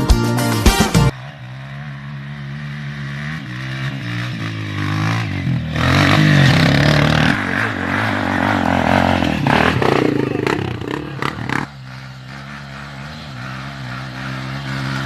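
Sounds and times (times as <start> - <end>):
dirt bike engine revving: 0.7 - 15.0.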